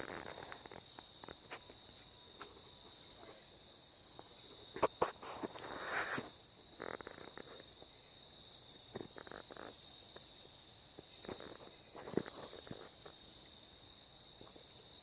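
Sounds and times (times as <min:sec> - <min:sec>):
insects trilling: 0:00.0 - 0:15.0
brief rustle: 0:04.8 - 0:06.3.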